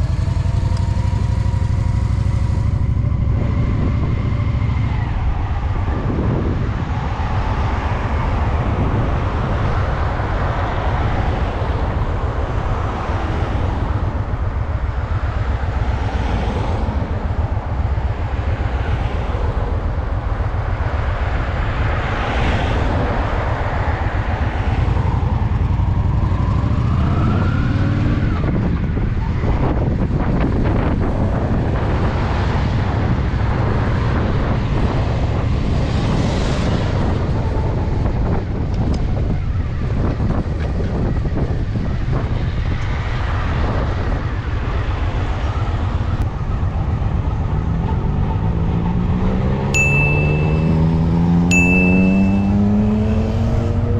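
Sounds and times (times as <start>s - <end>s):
motorcycle engine revving: 46.6s - 53.9s.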